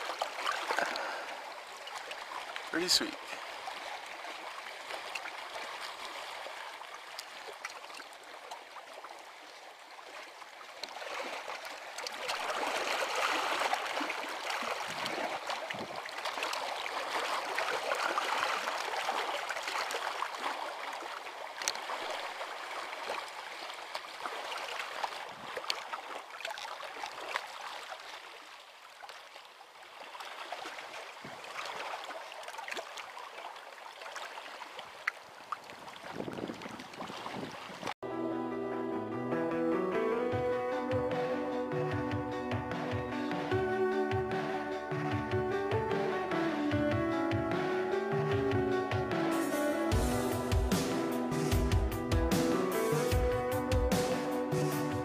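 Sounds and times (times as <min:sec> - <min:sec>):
faint splashes: 0:00.0 - 0:38.0
water trickling and gurgling: 0:00.0 - 0:38.0.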